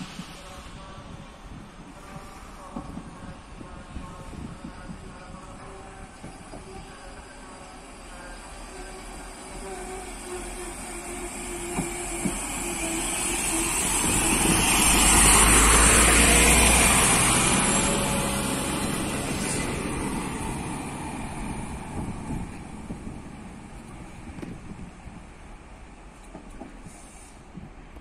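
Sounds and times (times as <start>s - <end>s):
strong hiss: 0.0s - 4.4s
train passing by: 0.0s - 28.0s.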